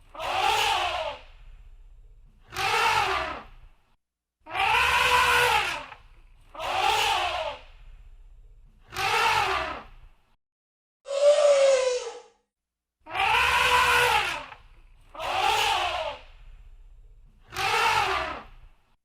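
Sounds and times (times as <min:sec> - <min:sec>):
elephant trumpeting: 0:04.5 - 0:05.9, 0:13.1 - 0:14.5.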